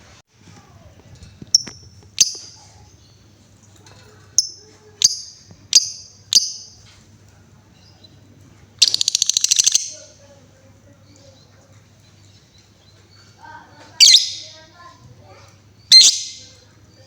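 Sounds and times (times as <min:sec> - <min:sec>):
lovebird sharp high calls: 0:04.4 - 0:06.8, 0:08.8 - 0:10.1, 0:14.0 - 0:14.6, 0:15.8 - 0:16.6
lovebird fast ticking clicks: 0:08.8 - 0:10.0.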